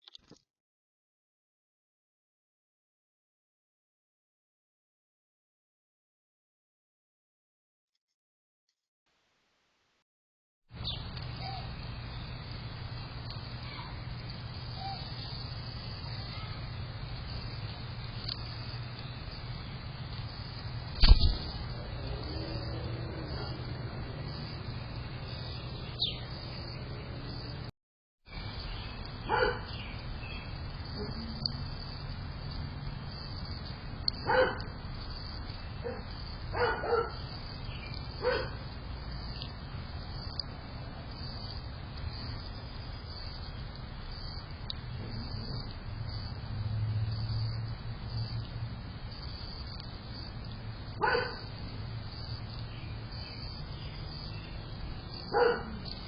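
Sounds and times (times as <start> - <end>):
low outdoor rumble: 10.7 - 27.7, 28.3 - 56.0
faint bird chirps: 10.8 - 12.4, 14.6 - 23.6
dog barking: 23.3 - 23.6, 29.3 - 29.7, 34.2 - 34.7, 35.8 - 37.2, 38.2 - 38.6, 51.0 - 51.5, 55.3 - 55.9.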